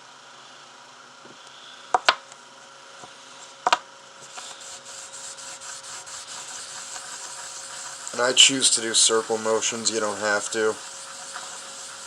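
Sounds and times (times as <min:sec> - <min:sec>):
wet sandpaper rubbing on metal: 0:04.2 - 0:12.0.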